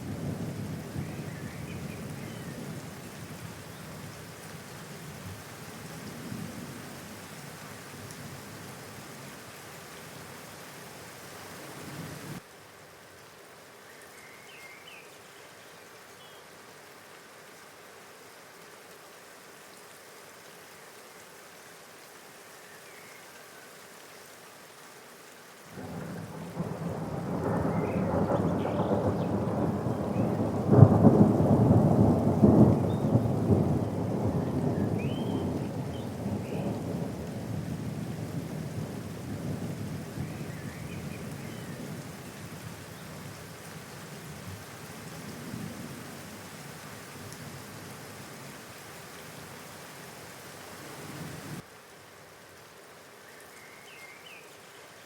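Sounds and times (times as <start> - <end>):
steady rain: 0.0 - 55.0
thunder rolling: 25.8 - 34.8.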